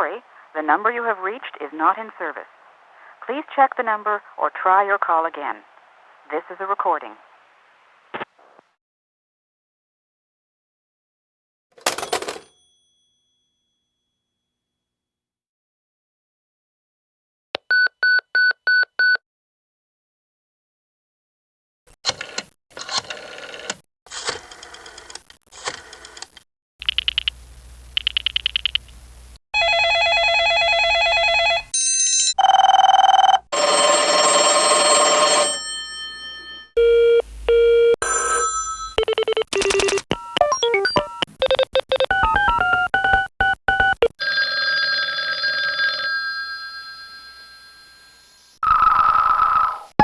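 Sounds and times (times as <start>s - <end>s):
telephone bell ringing: 11.9s - 13.2s, 29.6s - 37.1s, 38.0s - 40.0s, 44.2s - 50.0s
warbling electronic phone rings: 29.6s - 37.1s, 38.0s - 50.0s
telephone call tones: 29.6s - 50.0s
stepping beeps: 38.8s - 44.1s.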